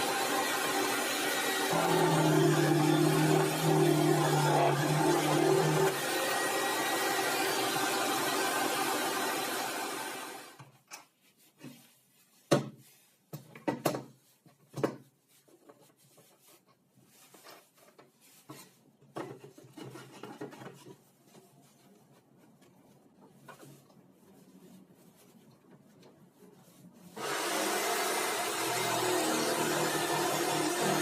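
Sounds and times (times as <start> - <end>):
power tool motor running: 0.0 - 10.6, 27.2 - 31.0.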